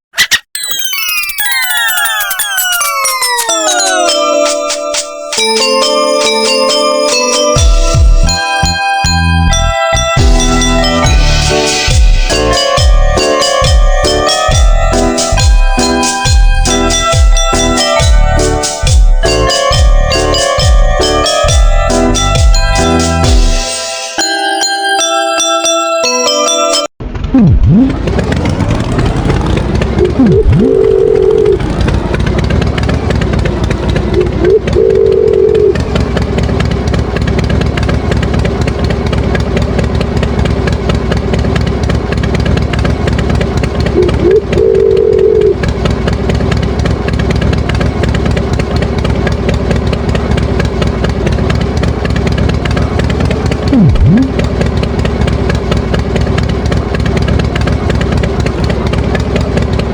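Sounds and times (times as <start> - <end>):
tractor engine idling: 27.0 - 59.9.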